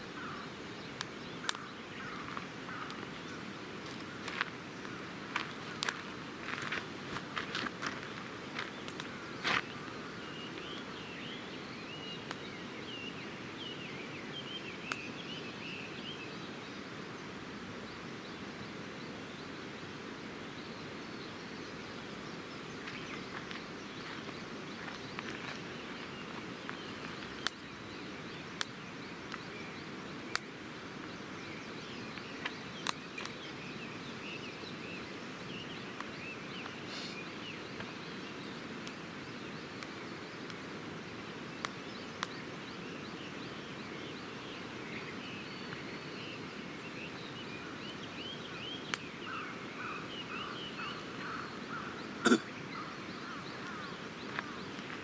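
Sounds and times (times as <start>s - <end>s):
birds chirping: 0.0s - 55.0s
steady outdoor hiss: 0.0s - 55.0s
campfire crackling and popping: 0.9s - 11.0s, 12.1s - 12.5s, 22.6s - 34.0s, 37.6s - 43.7s, 44.3s - 49.6s.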